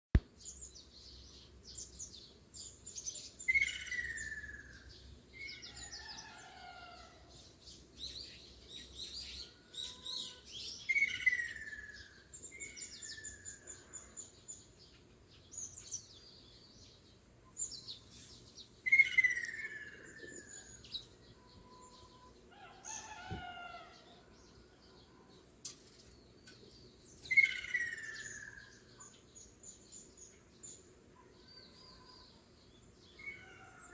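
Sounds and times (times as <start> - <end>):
birds chirping and trilling: 0.4 - 33.9
bird call falling in pitch: 21.6 - 23.9.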